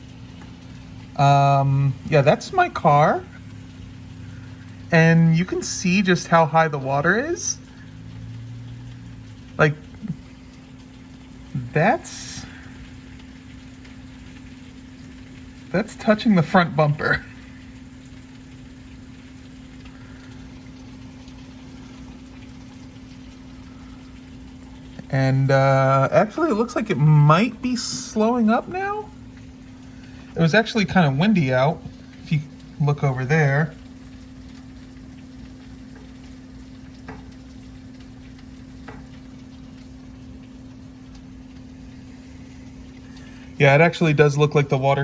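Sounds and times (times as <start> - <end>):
heavy rain pouring: 0.0 - 45.0
low steady hum: 0.0 - 45.0
faint ticks: 17.2 - 25.1, 33.7 - 43.5.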